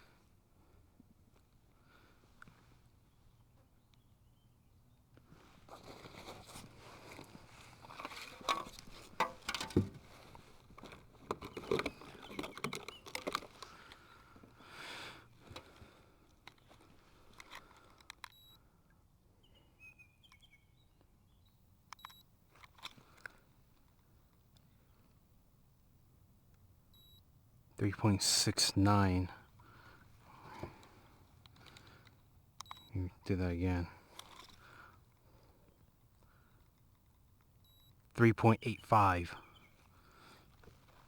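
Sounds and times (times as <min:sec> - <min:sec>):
faint bird chirp: 0:02.9 - 0:05.2, 0:18.4 - 0:22.2, 0:38.7 - 0:40.3
knocks and rustles of handled gear: 0:05.2 - 0:14.6, 0:15.4 - 0:18.3, 0:22.0 - 0:25.1, 0:34.0 - 0:37.3.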